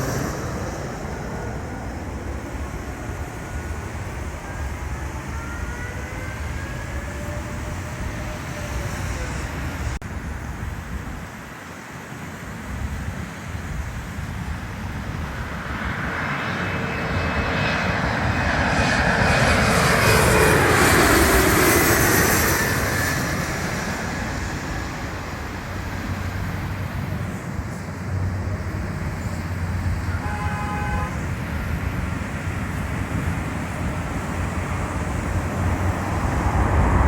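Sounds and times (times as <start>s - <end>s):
jet airliner passing overhead: 0.0s - 37.0s.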